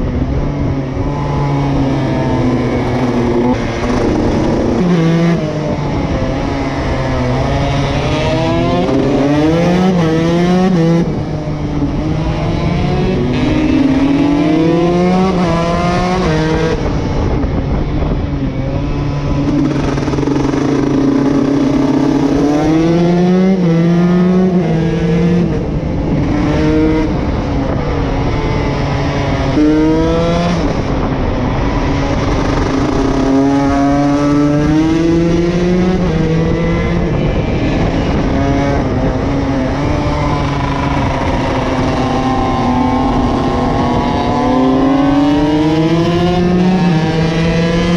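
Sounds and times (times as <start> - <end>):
rush of noise: 0.0 - 47.9
motocross bike engine revving: 1.2 - 11.2, 12.1 - 16.8, 18.9 - 25.5, 32.1 - 47.9.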